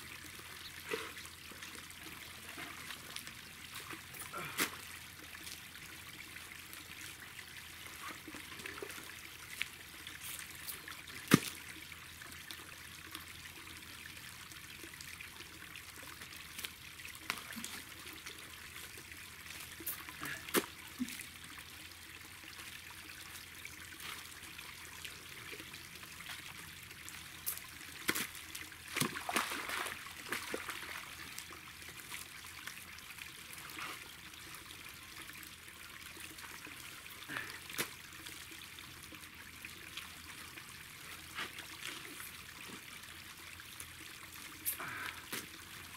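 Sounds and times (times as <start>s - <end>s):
water trickling: 0.0s - 45.9s
sharp knocks or splashes: 11.3s - 11.6s, 28.9s - 30.7s.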